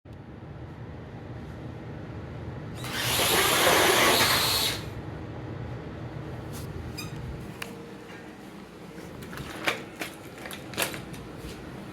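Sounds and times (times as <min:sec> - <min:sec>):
toy truck electric motor whirring: 0:02.8 - 0:04.9.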